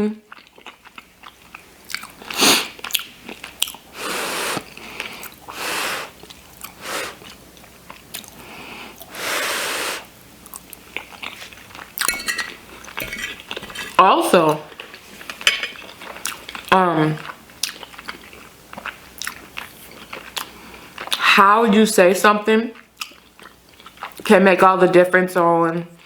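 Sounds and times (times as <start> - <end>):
close-up chewing: 0.3 - 3.9, 6.2 - 9.1, 10.4 - 12.1, 14.8 - 21.3.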